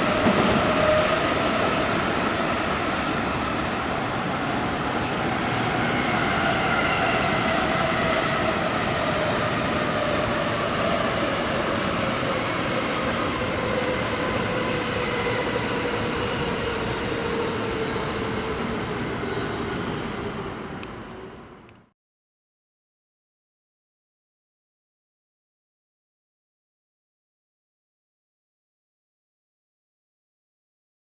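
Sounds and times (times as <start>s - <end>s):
train wheels rumbling on track: 0.0s - 21.8s.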